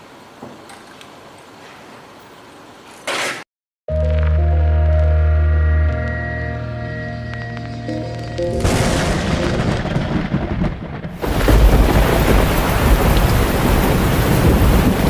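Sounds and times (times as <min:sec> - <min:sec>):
steady rain: 0:00.0 - 0:02.9, 0:07.2 - 0:15.0
thunder rumbling: 0:07.6 - 0:15.0.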